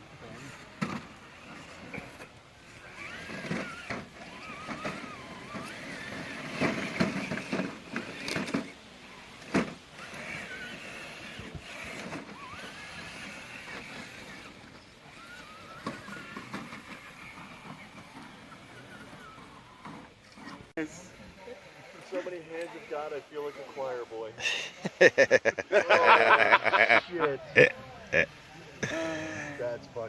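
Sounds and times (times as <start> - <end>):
electric motor whining: 0.0 - 30.0
toy truck knocking and clattering: 0.7 - 8.8, 9.4 - 20.5.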